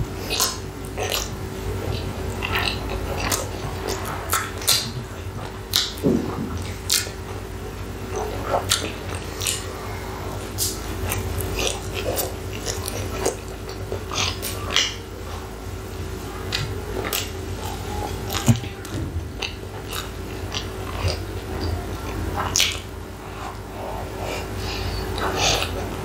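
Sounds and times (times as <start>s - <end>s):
faint steady hum: 0.0s - 26.0s
wet chewing mouth clicks: 0.3s - 7.2s, 8.1s - 9.7s, 16.5s - 25.9s.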